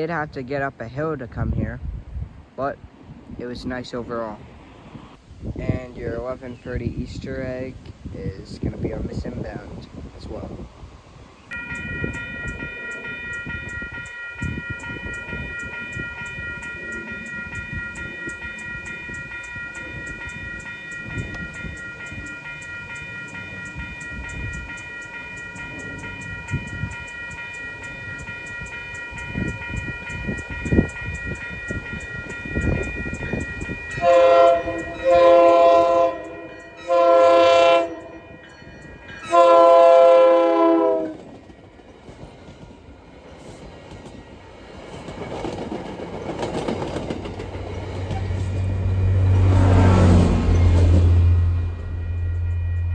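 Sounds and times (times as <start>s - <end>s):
crossing warning bell ringing: 11.5s - 42.0s, 44.9s - 52.9s
train horn blasts: 33.9s - 38.5s, 39.2s - 41.2s, 48.4s - 52.9s.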